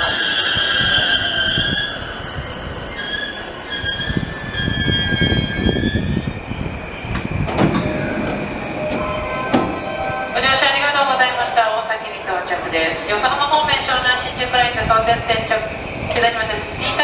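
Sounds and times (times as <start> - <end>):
train brakes squealing: 0.0 - 11.7
train running rumble: 0.0 - 17.0.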